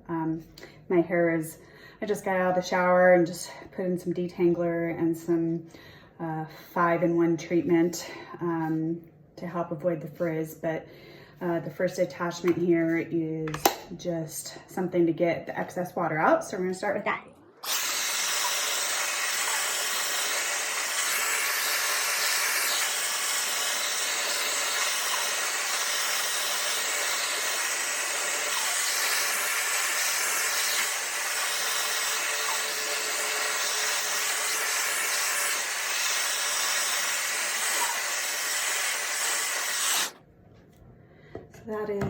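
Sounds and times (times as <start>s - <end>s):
hair dryer blowing: 17.6s - 40.2s.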